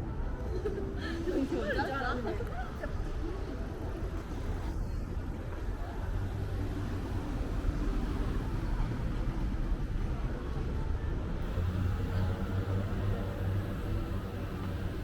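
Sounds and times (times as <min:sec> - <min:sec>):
vehicle engines rumbling: 0:02.9 - 0:15.0.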